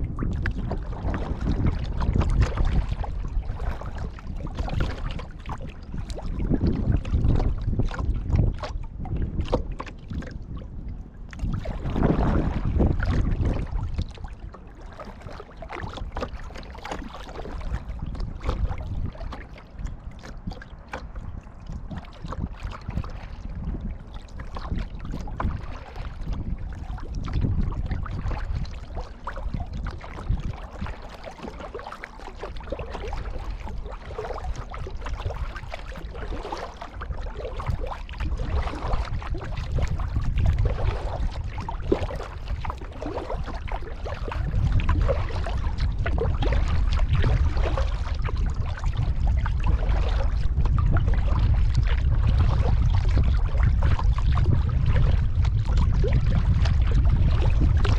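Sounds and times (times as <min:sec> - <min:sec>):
paddle splashes: 0:00.0 - 0:57.9
water lapping against hull: 0:00.0 - 0:57.9.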